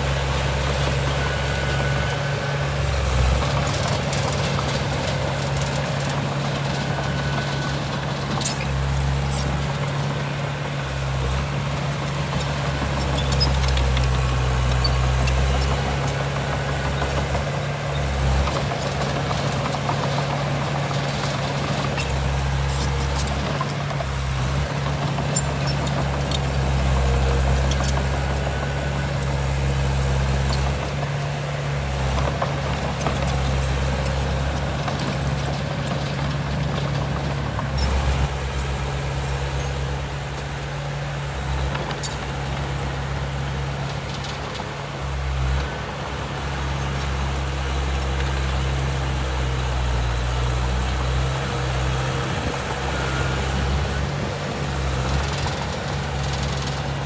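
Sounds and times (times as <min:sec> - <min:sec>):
diesel machinery engine hum: 0:00.0 - 0:57.0
light clicks and clanks: 0:18.4 - 0:29.3, 0:43.8 - 0:44.9.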